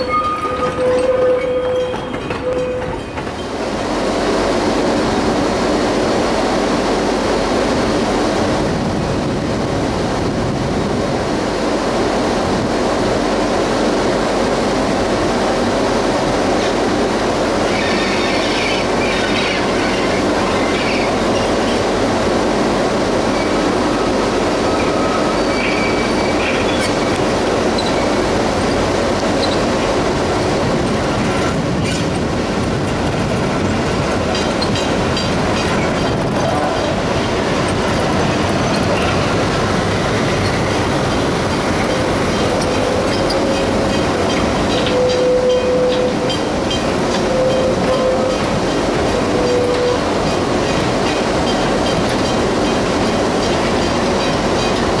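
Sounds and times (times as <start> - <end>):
train rolling along track: 0.0 - 55.0
wheels squealing on curved track: 17.7 - 21.5.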